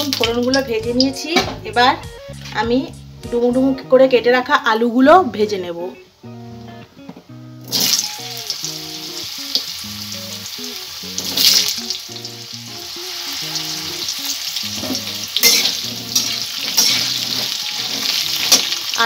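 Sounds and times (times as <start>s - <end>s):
potatoes sizzling in hot oil: 0.0s - 1.2s, 7.6s - 19.0s
soft instrumental music: 0.0s - 19.0s.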